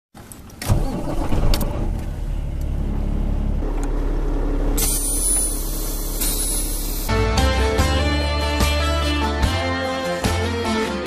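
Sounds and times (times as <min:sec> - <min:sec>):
truck engine rumbling: 0:00.3 - 0:08.2.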